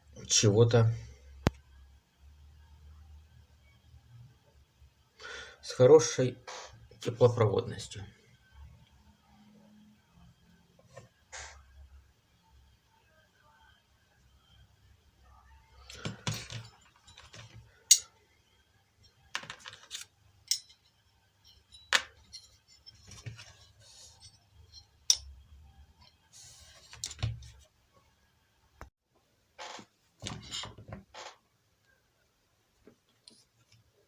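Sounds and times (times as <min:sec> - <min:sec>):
small parts and tools clicking: 0:15.9 - 0:18.2, 0:19.0 - 0:25.4.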